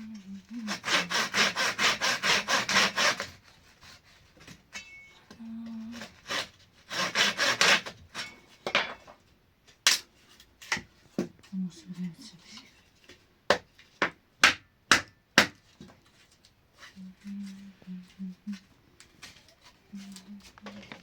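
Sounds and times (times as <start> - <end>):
hand saw cutting wood: 0.3 - 4.4, 5.9 - 8.3.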